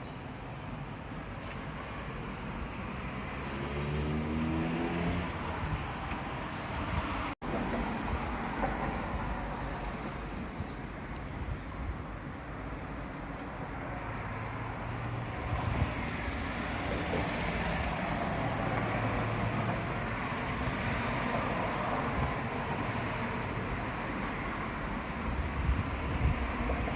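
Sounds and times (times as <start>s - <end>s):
wind blowing across microphone: 4.7s - 9.4s, 15.3s - 18.9s, 21.8s - 23.9s, 24.9s - 26.9s.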